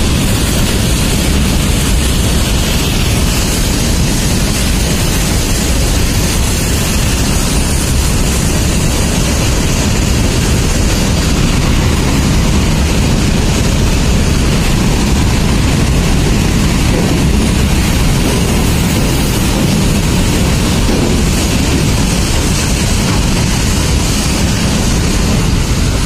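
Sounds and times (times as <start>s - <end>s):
wagon wheels rumbling on rails: 0.0s - 26.0s.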